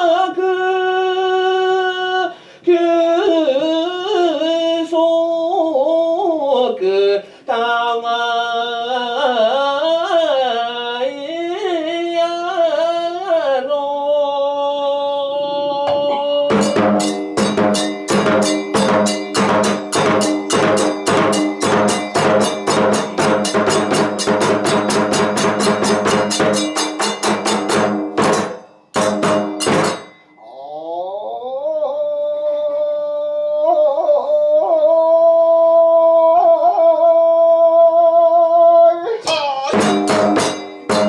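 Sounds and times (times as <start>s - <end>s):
drum beaten in fast rhythm: 15.9s - 30.4s, 39.3s - 41.0s
ringing metallic accents: 15.9s - 30.6s, 39.3s - 41.0s.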